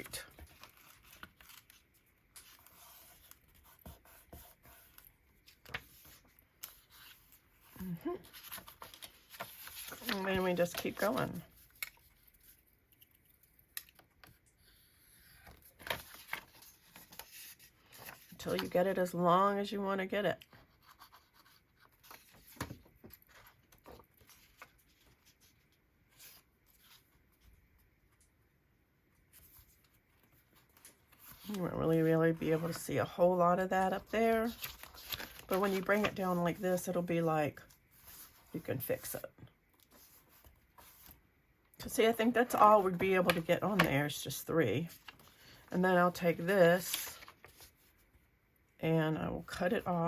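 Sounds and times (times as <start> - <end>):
paper cards tapping and rustling: 0.2 - 12.1, 20.9 - 25.2, 33.9 - 36.6, 42.3 - 44.2
paper rustling: 0.2 - 13.2, 15.4 - 19.0, 20.6 - 27.5, 29.3 - 37.0, 37.6 - 41.2, 46.7 - 48.1.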